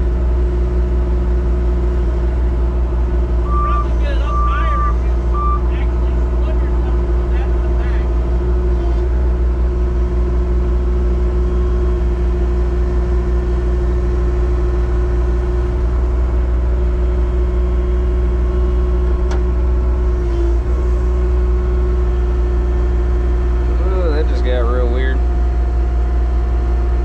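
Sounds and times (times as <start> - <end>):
engine running with whine: 0.0 - 27.0.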